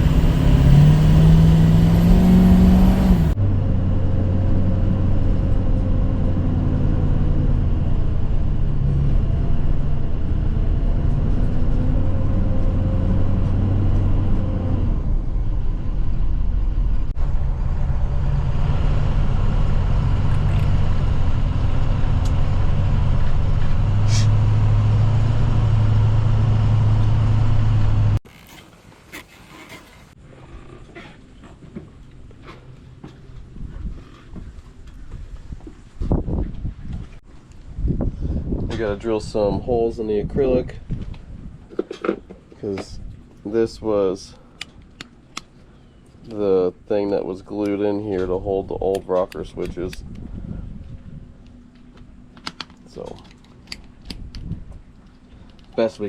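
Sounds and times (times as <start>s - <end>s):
outboard engine running: 0.0s - 11.9s.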